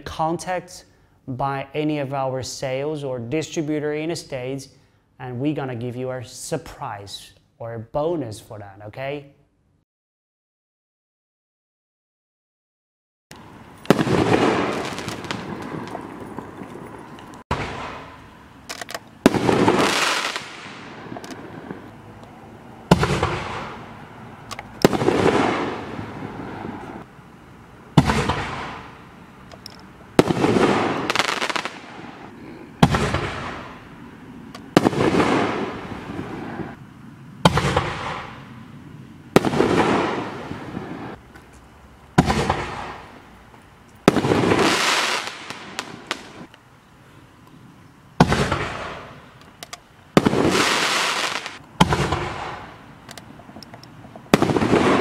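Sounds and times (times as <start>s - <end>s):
noisy tail after bangs: 17.5s - 18.2s, 22.9s - 23.8s, 24.8s - 26.2s, 28.0s - 29.0s, 32.8s - 33.8s
firework shell bangs: 22.9s - 23.8s, 28.0s - 28.9s.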